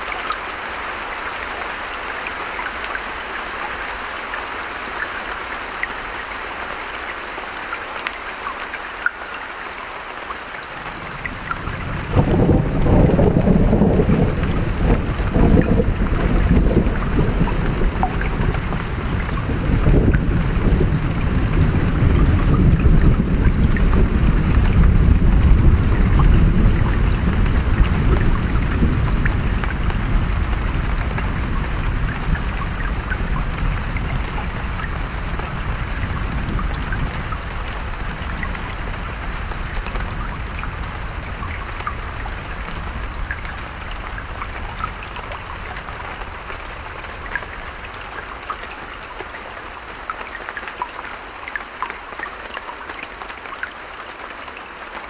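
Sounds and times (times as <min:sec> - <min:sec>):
rain pattering: 0:00.0 - 0:55.0
thunder rumbling: 0:11.3 - 0:41.5.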